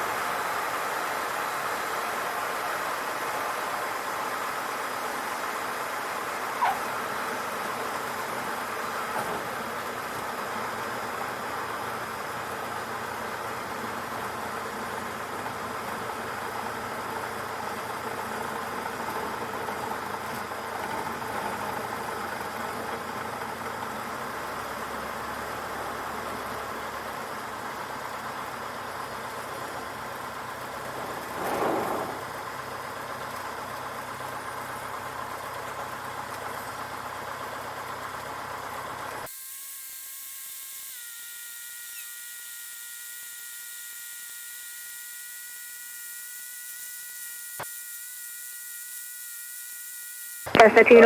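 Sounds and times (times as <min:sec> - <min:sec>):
aircraft cabin engine drone: 0:50.5 - 0:51.0.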